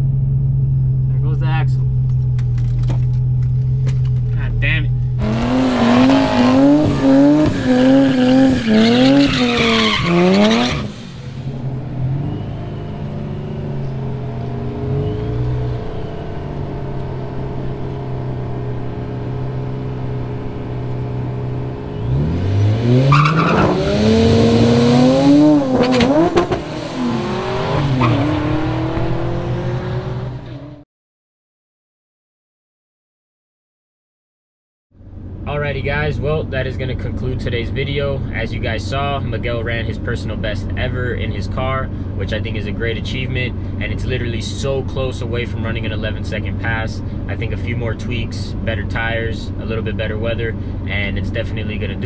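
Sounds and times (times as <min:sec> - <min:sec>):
car engine revving: 0:00.0 - 0:30.8
engine running drone: 0:00.0 - 0:30.8
car accelerating hard: 0:05.1 - 0:30.8
tire squeal: 0:05.2 - 0:16.6, 0:21.8 - 0:28.9.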